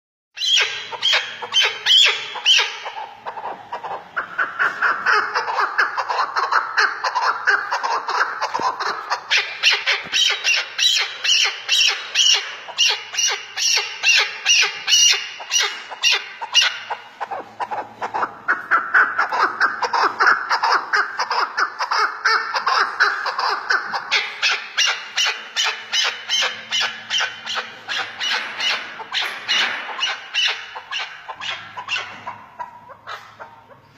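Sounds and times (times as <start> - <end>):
partridge harsh chucking calls: 0.4 - 33.9.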